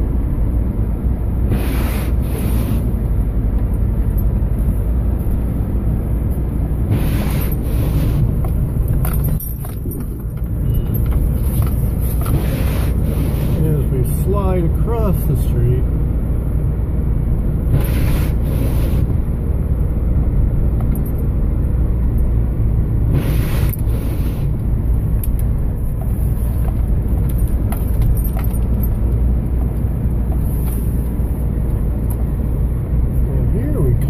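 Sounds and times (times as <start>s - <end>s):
engine and road rumble: 0.0s - 34.0s
short hissing swishes: 1.5s - 2.9s, 6.9s - 8.3s, 17.8s - 19.1s.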